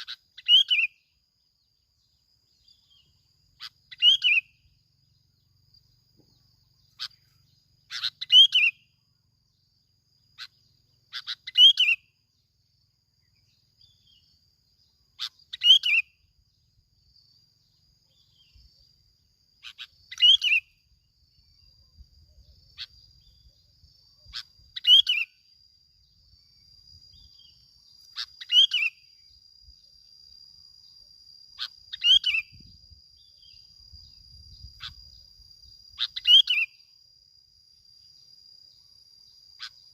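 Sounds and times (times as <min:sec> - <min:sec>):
bird singing bright falling phrases: 0:00.0 - 0:01.1, 0:01.9 - 0:09.0, 0:15.1 - 0:16.2, 0:19.6 - 0:21.8, 0:26.4 - 0:29.4.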